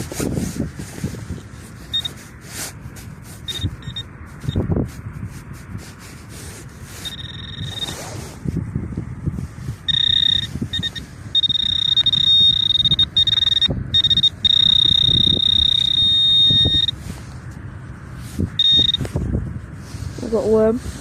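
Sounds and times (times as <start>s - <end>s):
wind rumble on microphone: 0.0s - 21.0s
pinpointer high-pitched tone: 7.0s - 8.0s, 9.9s - 17.0s, 18.6s - 19.1s.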